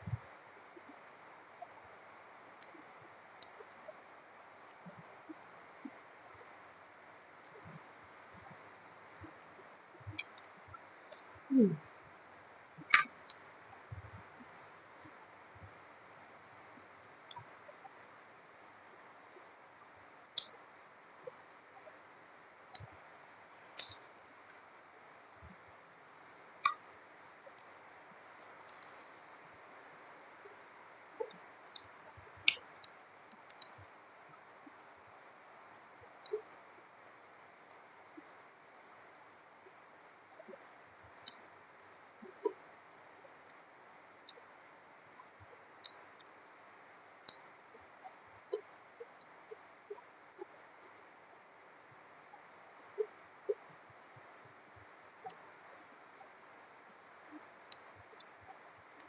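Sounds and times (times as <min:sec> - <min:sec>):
mouth clicks and smacks: 0:12.8 - 0:14.0, 0:26.6 - 0:26.8, 0:32.5 - 0:32.7.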